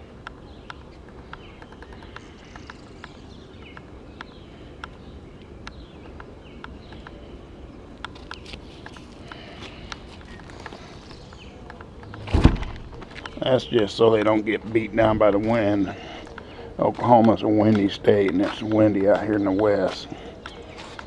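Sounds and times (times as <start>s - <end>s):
songbirds chirping: 0.0s - 21.0s
low background rumble: 11.9s - 14.0s.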